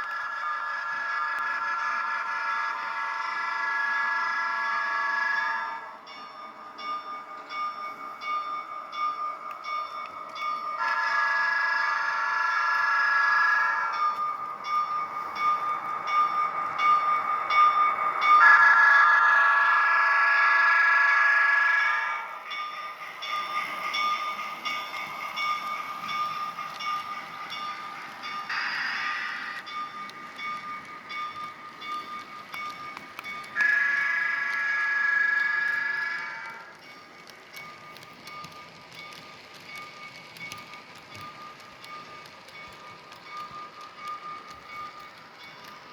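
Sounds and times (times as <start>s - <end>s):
steam locomotive chuffs: 0.0s - 45.9s
train bell ringing: 0.0s - 45.9s
multi-tone train whistle: 0.1s - 6.0s, 10.8s - 14.0s, 18.3s - 22.3s, 33.4s - 36.7s
model train multi-tone horn: 10.8s - 11.6s.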